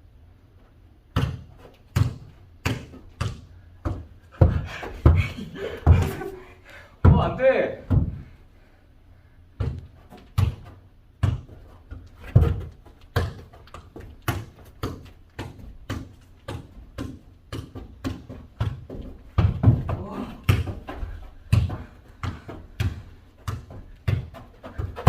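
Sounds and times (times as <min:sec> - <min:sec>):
ball thudding: 0:09.6 - 0:25.0.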